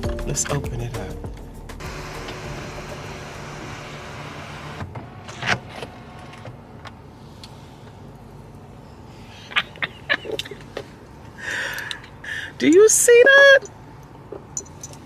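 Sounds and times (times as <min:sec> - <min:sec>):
sunroof motor running: 0:01.8 - 0:05.0.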